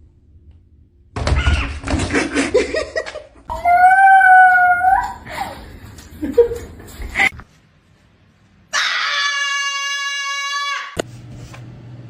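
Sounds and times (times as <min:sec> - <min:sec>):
dog howling: 0:03.5 - 0:05.2.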